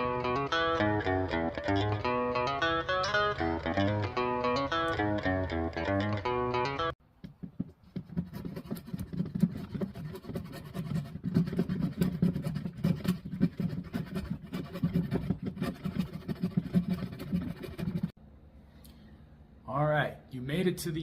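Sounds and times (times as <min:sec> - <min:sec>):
rapid scratching and scraping: 0:07.4 - 0:18.2.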